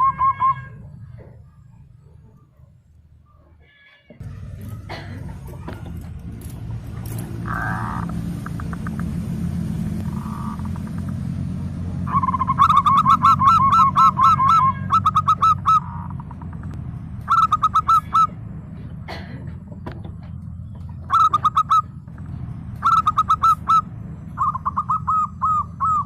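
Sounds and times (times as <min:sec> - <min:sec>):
steady low rumble: 0:04.2 - 0:14.2
dove cooing: 0:12.1 - 0:16.6, 0:17.2 - 0:18.4, 0:20.0 - 0:22.0, 0:22.8 - 0:26.0.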